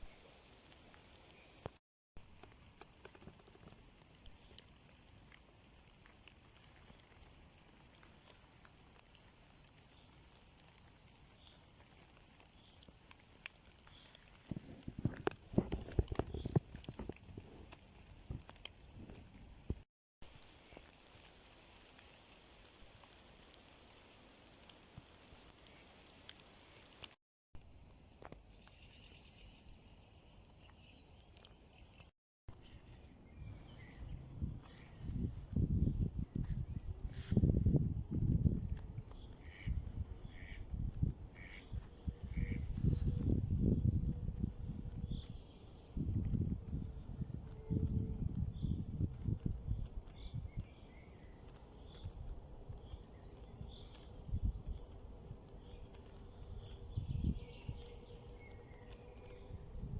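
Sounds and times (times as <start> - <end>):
light raindrop ticks: 0.6 - 27.2, 36.3 - 59.9
faint steady hiss: 20.3 - 27.2.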